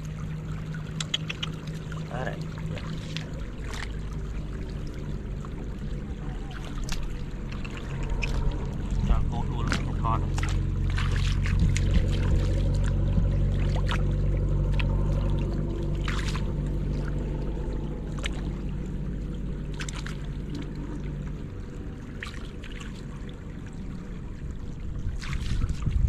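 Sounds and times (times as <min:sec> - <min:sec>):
low mechanical hum: 0:00.0 - 0:26.0
water splashing and trickling: 0:00.0 - 0:26.0
sharp clicks: 0:01.0 - 0:01.6.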